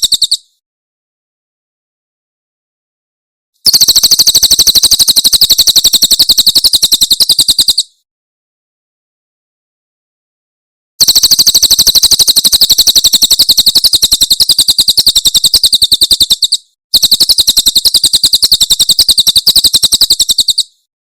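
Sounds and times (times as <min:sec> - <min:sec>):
bird call of rapid high notes: 0:00.0 - 0:00.5.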